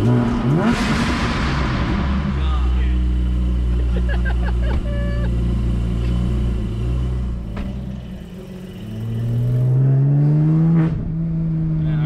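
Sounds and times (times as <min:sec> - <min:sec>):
car pulling away: 0:00.0 - 0:11.8
car engine idling deeply: 0:01.4 - 0:09.8.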